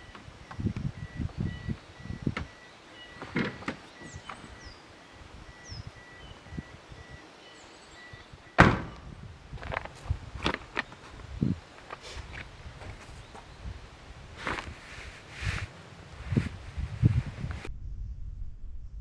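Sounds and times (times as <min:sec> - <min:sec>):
knocks and thumps: 0:00.0 - 0:04.7, 0:08.5 - 0:13.5
bird chirps: 0:00.0 - 0:17.7.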